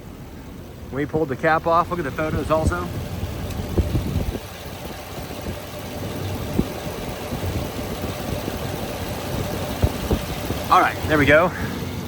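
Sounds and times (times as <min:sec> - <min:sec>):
pickup engine idling: 0:00.0 - 0:12.0
man talking: 0:00.9 - 0:03.0, 0:10.7 - 0:11.8.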